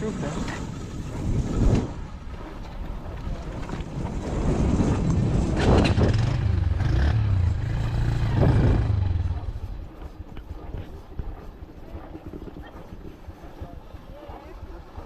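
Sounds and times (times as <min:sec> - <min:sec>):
vehicle engine running: 0:05.7 - 0:15.0.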